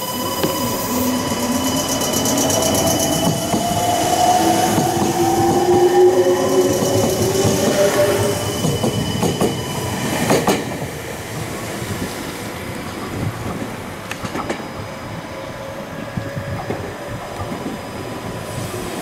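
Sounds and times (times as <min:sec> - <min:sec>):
train wheels clicking over rail joints: 0:10.2 - 0:10.9, 0:12.9 - 0:14.7.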